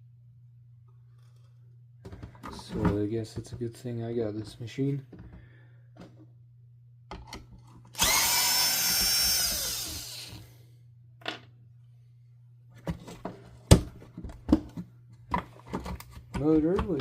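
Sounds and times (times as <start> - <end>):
power drill spinning: 7.9 - 10.5.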